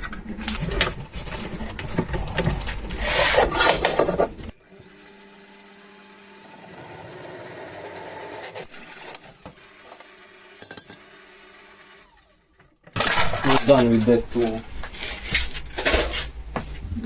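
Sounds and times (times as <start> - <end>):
drill scraping through metal: 2.9 - 13.9.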